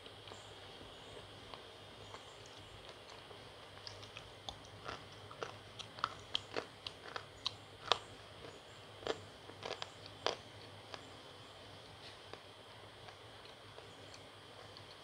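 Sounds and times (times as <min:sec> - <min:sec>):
crunching slate pencil with teeth: 0:03.8 - 0:11.1.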